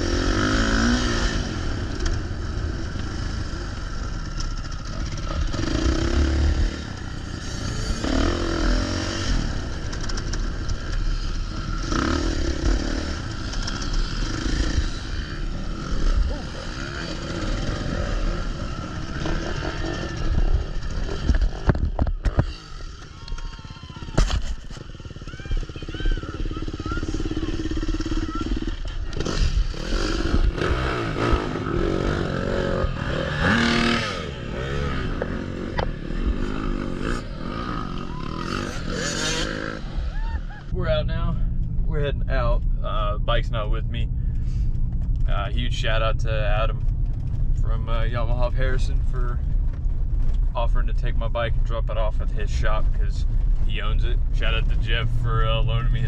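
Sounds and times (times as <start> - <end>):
dirt bike engine revving: 0.0 - 44.3.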